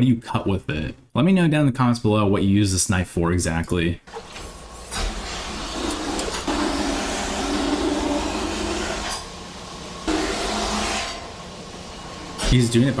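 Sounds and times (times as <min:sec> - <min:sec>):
grinding machine sharpening knife: 0:10.1 - 0:11.4.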